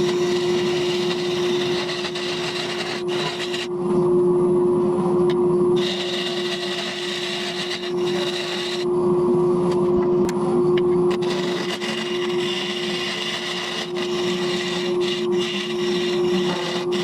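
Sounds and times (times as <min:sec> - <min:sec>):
turning tool scraping wood: 0:00.0 - 0:03.7, 0:05.8 - 0:08.9, 0:11.1 - 0:17.0
wood lathe humming: 0:00.0 - 0:03.7, 0:05.8 - 0:08.9, 0:11.1 - 0:17.0.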